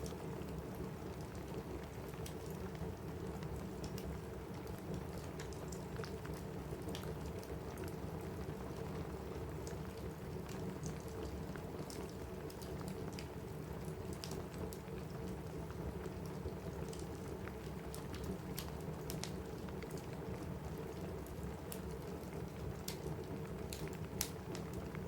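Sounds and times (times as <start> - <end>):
rain on a roof: 0.0 - 25.0
wood fire crackling: 0.0 - 25.0.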